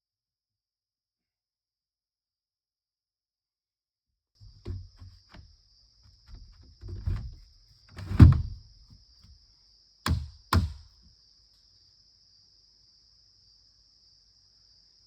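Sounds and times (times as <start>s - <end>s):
dull thuds: 4.4s - 5.5s, 6.1s - 9.0s, 10.1s - 10.9s
sharp knocks: 8.0s - 8.6s, 10.1s - 10.9s.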